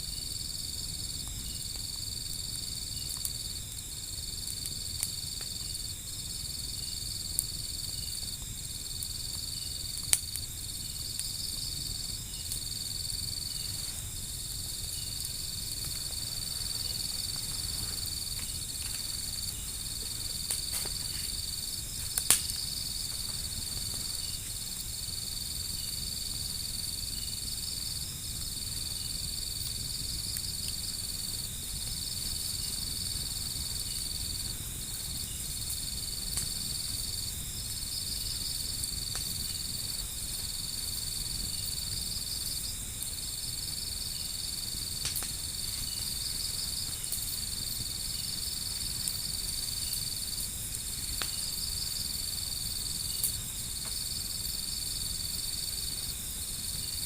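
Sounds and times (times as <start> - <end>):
crickets trilling: 0.0 - 57.0
sharp crack: 22.1 - 22.6.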